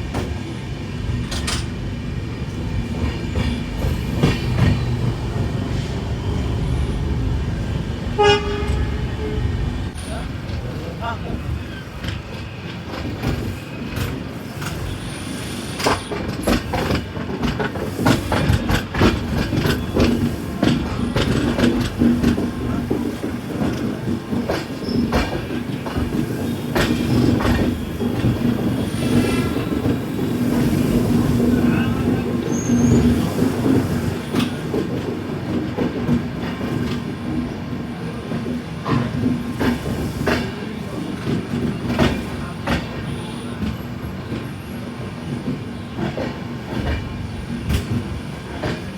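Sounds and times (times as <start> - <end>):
train rumbling on track: 0.0 - 48.9
wheel squeal: 32.4 - 33.4.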